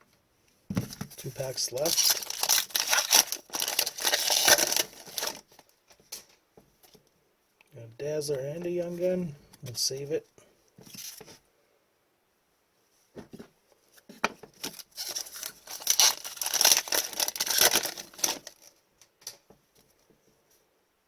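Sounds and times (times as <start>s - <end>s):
foil wrapper tearing and crinkling: 1.6s - 5.7s, 14.6s - 18.7s.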